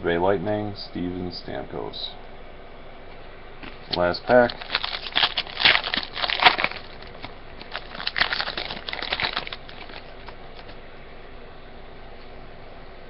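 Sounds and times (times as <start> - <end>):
card pack wrapper tearing and crinkling: 3.9 - 10.8.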